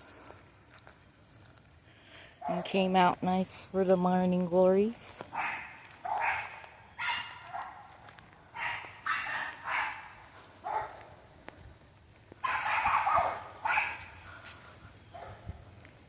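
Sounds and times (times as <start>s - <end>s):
dog barking: 5.3s - 11.0s, 12.4s - 14.2s, 15.1s - 15.5s.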